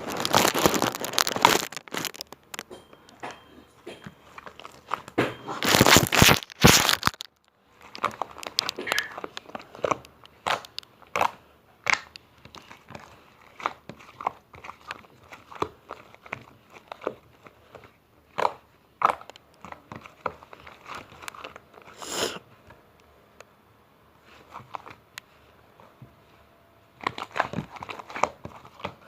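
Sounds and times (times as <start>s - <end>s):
crinkling and tearing: 0.0s - 2.7s, 4.3s - 22.0s, 27.0s - 29.0s
sharp crunches and clicks: 0.0s - 3.4s, 4.4s - 21.9s, 27.0s - 29.0s.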